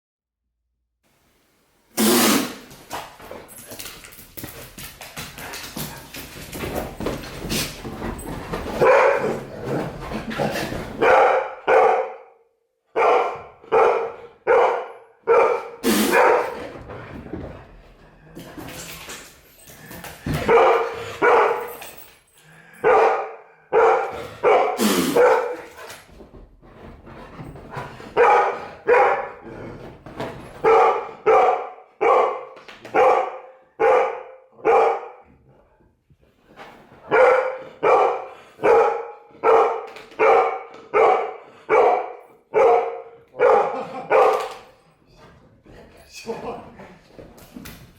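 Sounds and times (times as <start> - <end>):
dog barking: 8.8 - 9.4, 11.0 - 16.6, 20.4 - 21.8, 22.8 - 25.7, 28.2 - 29.4, 30.6 - 35.3, 37.0 - 44.6.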